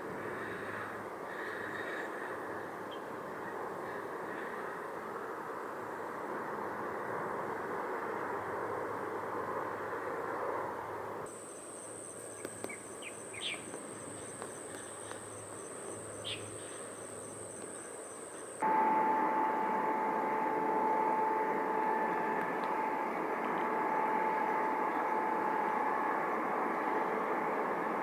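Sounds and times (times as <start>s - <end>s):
jet airliner engine noise: 0.0s - 28.0s
bird chirps: 11.3s - 18.8s
high insect drone: 11.3s - 28.0s.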